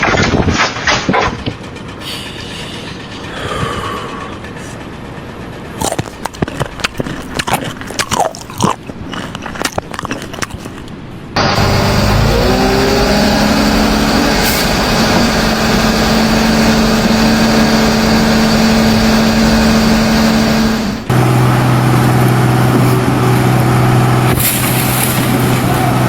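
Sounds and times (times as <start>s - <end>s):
engine running at lower pitch: 11.3s - 26.0s
machinery engine running loudly: 11.4s - 26.0s.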